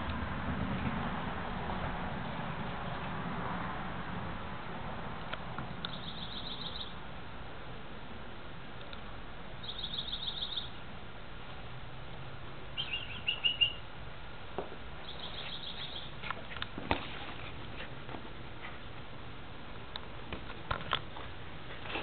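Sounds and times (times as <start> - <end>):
songbird trilling: 5.9 - 7.0, 9.6 - 10.7, 12.8 - 13.8, 15.0 - 16.2.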